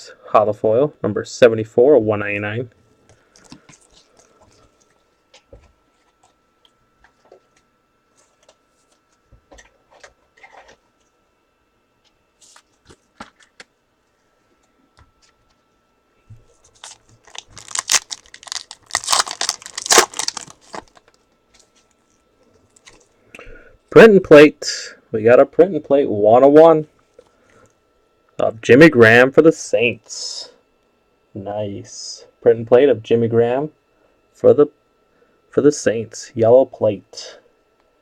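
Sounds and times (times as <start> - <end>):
card pack wrapper tearing and crinkling: 16.7 - 21.2.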